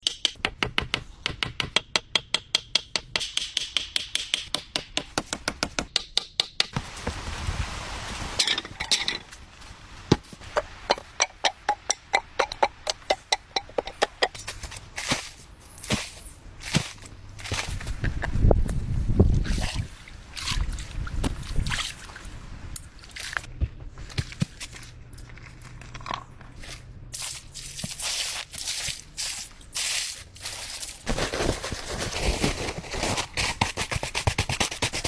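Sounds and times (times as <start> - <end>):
hand tool strikes: 10.9 - 14.4.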